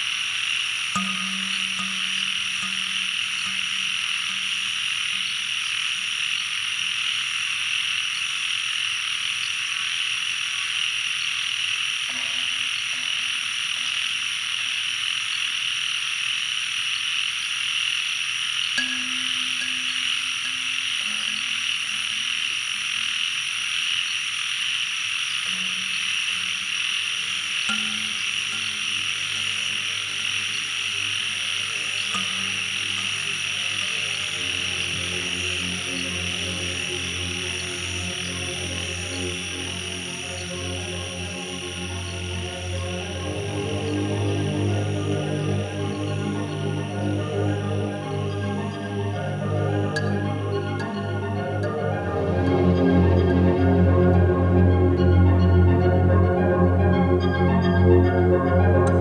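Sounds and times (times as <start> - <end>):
chorus of frogs and insects: 0.0 - 59.0
soft synth drone: 1.0 - 7.2, 18.8 - 23.4, 25.4 - 59.0.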